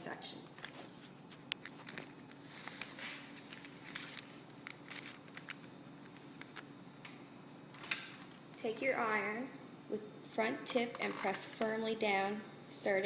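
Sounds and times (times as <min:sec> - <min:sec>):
faint steady hum: 0:00.0 - 0:13.0
paper rustling: 0:00.5 - 0:06.7.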